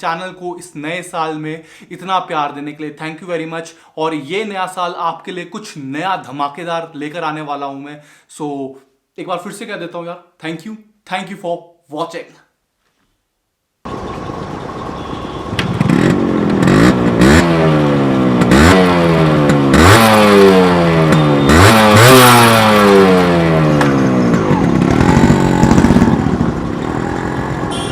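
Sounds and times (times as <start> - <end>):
motorcycle engine revving: 13.9 - 27.9.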